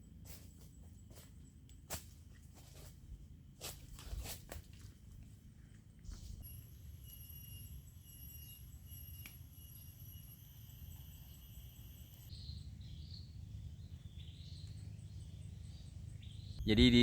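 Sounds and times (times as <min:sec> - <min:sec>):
insects trilling: 0:06.4 - 0:12.9.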